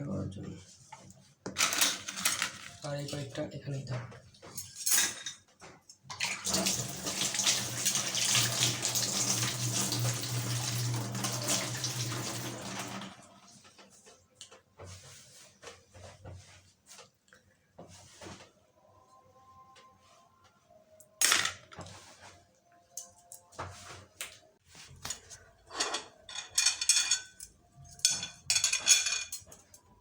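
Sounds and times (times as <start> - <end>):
water running from a tap: 6.2 - 13.4.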